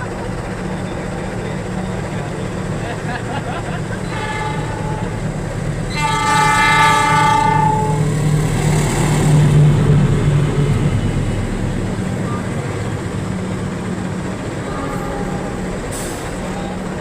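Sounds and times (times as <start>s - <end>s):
passing train rumble: 0.0s - 17.0s
locomotive horn blast: 4.0s - 8.3s, 14.6s - 16.8s.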